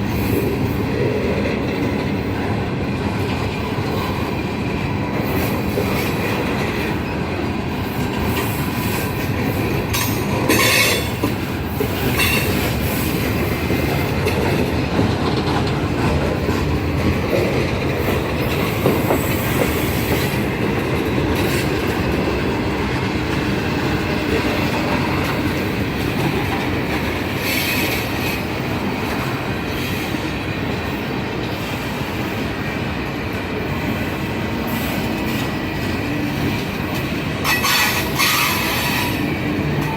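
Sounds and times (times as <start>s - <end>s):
railroad cars rumbling and clattering: 0.0s - 39.9s
high-pitched wheel squeals: 37.4s - 39.2s.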